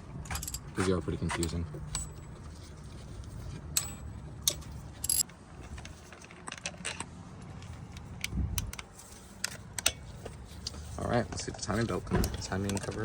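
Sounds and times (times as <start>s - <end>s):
metal tools clinking: 0.2s - 2.8s, 3.4s - 7.0s.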